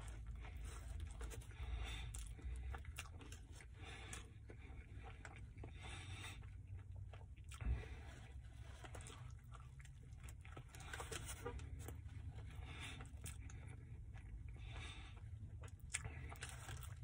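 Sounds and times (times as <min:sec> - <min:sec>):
person chewing with wet smacks: 0:00.0 - 0:17.0
steady low hum: 0:00.0 - 0:17.0.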